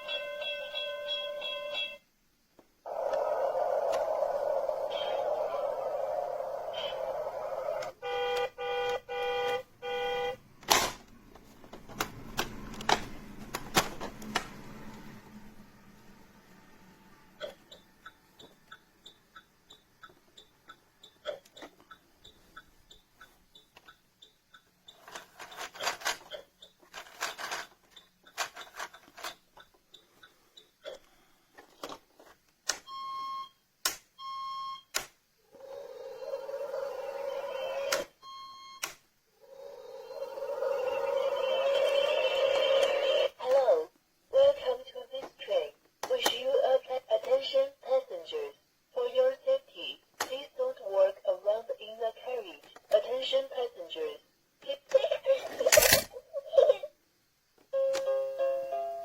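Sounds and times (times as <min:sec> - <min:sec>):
electronic toy beeps: 0:00.0 - 0:02.0, 0:17.4 - 0:25.0, 0:32.8 - 0:33.6, 0:34.2 - 0:34.9, 0:37.2 - 0:38.9
plastic toy clicks and knocks: 0:55.6 - 0:56.1.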